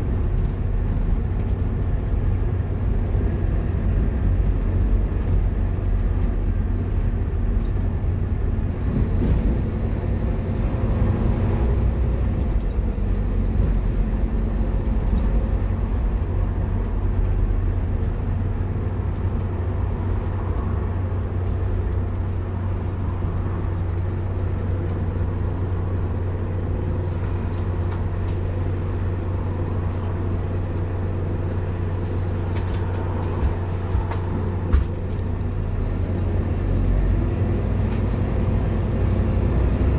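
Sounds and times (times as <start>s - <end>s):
bus engine drone: 0.0s - 39.9s
road noise: 0.0s - 39.9s.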